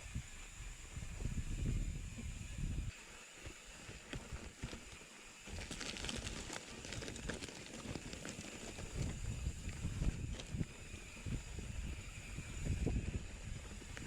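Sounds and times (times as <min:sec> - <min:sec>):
wind rumble on microphone: 0:00.0 - 0:14.0
horse hooves on dirt: 0:03.4 - 0:11.3
crackling: 0:04.6 - 0:10.6.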